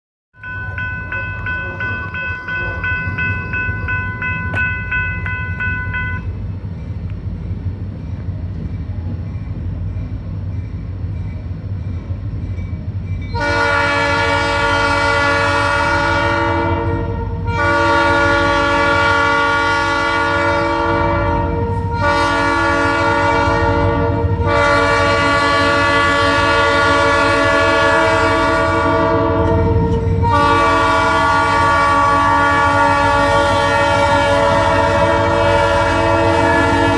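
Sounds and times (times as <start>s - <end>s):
diesel locomotives rumbling: 0.3s - 36.9s
locomotive bell ringing: 0.4s - 7.1s, 8.0s - 14.5s, 29.2s - 36.9s
train air horn blasts: 13.3s - 36.9s.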